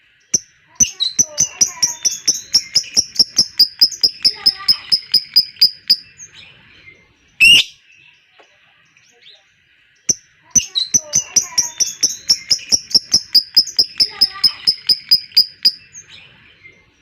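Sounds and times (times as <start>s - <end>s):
lovebird high chirps chatter: 0.3s - 6.6s, 7.4s - 7.9s, 8.7s - 16.7s
loud harsh bird call: 7.4s - 7.8s.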